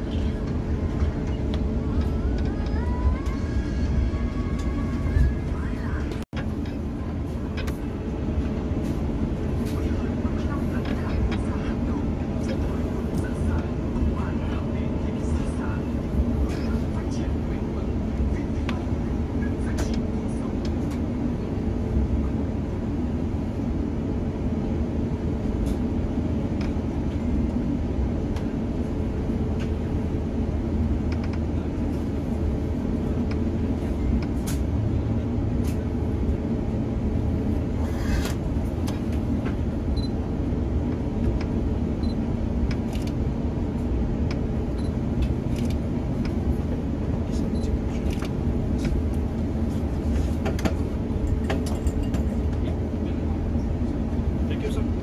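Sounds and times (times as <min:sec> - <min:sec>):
aircraft cabin rumble and hum: 0:00.0 - 0:55.0.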